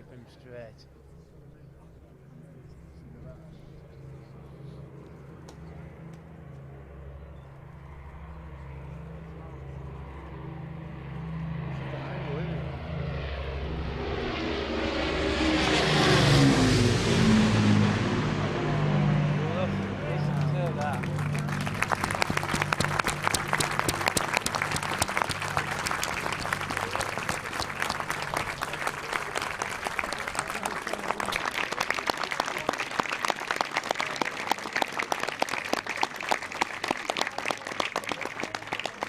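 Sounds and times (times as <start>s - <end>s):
aircraft droning hum: 0.0s - 39.0s
crowd applauding: 20.1s - 39.0s.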